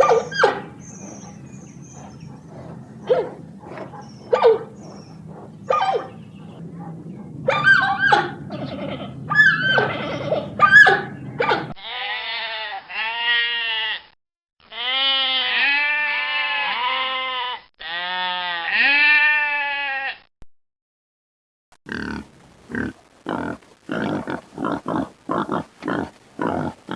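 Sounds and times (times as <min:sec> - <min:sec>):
high yelping animal calls: 0:00.0 - 0:11.8
long wavering bleats: 0:07.9 - 0:14.1, 0:14.7 - 0:20.2.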